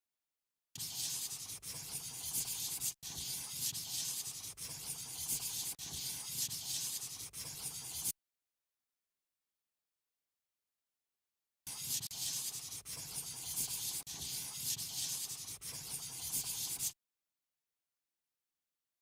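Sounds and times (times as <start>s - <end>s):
marker scratching on paper: 0.8s - 8.2s, 11.7s - 17.0s.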